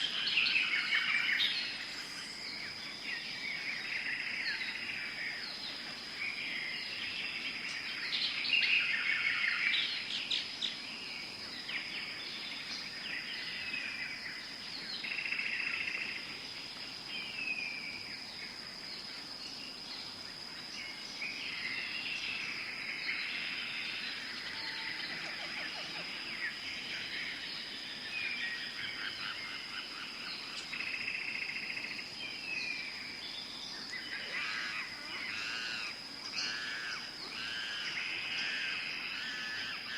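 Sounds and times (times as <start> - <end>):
birds calling: 33.4 - 39.9.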